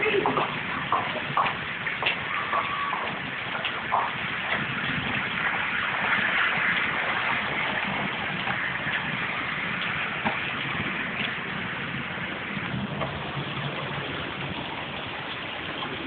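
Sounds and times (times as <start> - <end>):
hail hissing: 0.0 - 16.0
hailstones striking: 0.0 - 16.0.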